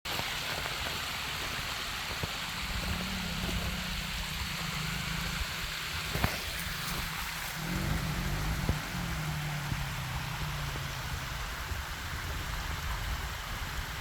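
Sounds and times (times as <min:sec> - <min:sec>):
water rushing over waterfall: 0:00.1 - 0:14.0
engine idling low: 0:01.9 - 0:14.0.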